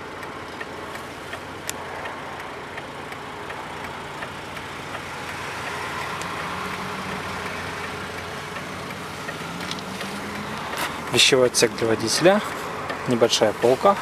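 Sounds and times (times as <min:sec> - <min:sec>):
vehicle noise: 0:00.0 - 0:14.0
motor humming: 0:03.6 - 0:11.8.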